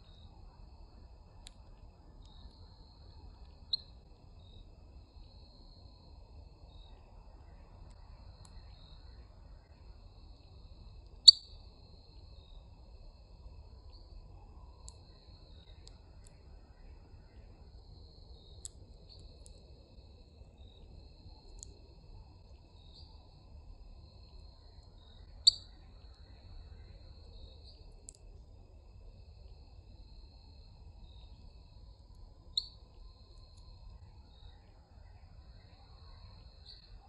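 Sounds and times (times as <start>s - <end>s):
faint low outdoor rumble: 0.0s - 37.0s
high thin insect trill: 32.0s - 33.8s.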